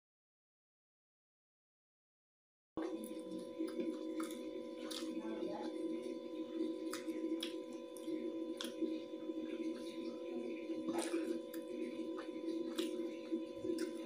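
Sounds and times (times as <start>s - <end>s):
steady hum of held tones: 2.8s - 14.0s
wet mouth clicks and smacks: 6.9s - 8.8s.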